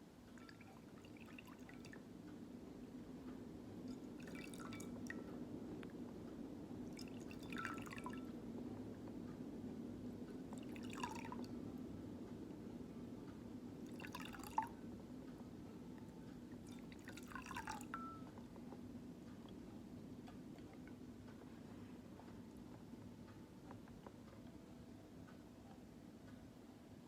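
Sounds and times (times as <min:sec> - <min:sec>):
steady low hum: 0:00.0 - 0:27.0
water drips into water: 0:00.3 - 0:02.1, 0:03.8 - 0:05.4, 0:06.7 - 0:08.4, 0:10.4 - 0:11.6, 0:13.6 - 0:14.8, 0:16.0 - 0:18.8.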